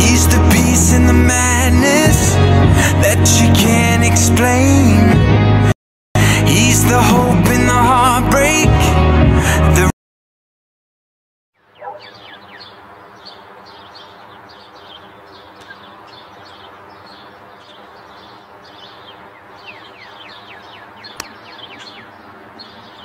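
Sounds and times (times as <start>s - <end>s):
birds chirping: 11.6s - 23.0s.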